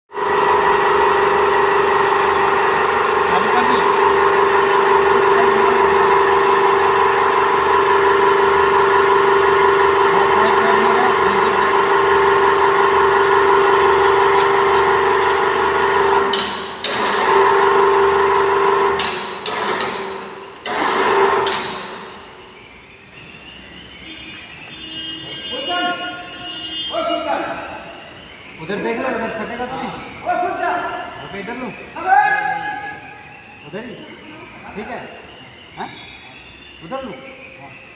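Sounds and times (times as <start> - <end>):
furnace blower whining: 0.1 - 22.4.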